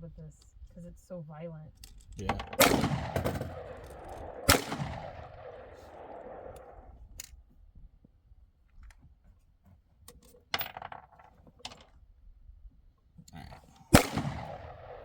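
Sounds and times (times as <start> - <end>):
gunshot: 2.4 - 6.8, 13.9 - 15.0.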